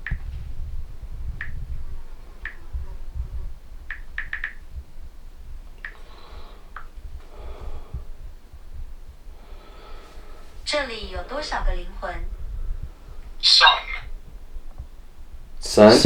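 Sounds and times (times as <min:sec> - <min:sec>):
touchscreen keyboard taps: 0:03.9 - 0:04.6.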